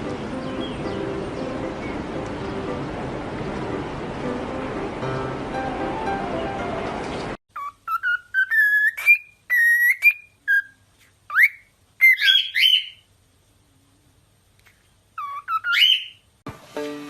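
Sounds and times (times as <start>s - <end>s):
background music: 0.0s - 7.4s, 16.5s - 17.0s.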